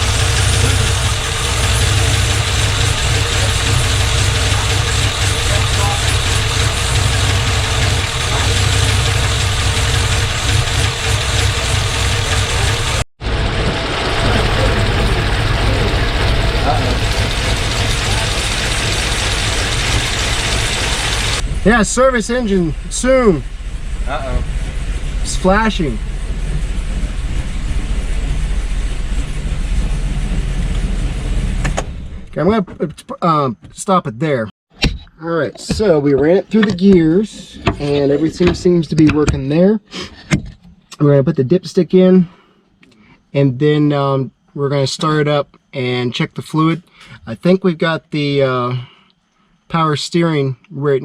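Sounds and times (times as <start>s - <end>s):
engine idling: 0.0s - 32.5s.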